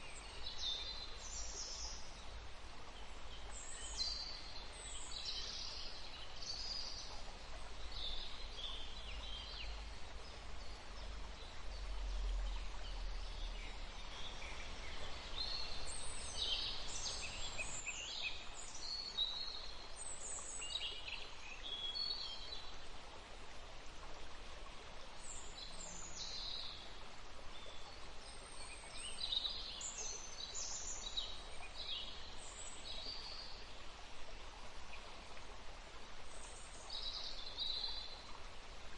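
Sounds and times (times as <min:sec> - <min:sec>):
songbirds singing and chirping: 0:00.0 - 0:22.7
forest ambience hiss: 0:00.0 - 0:38.9.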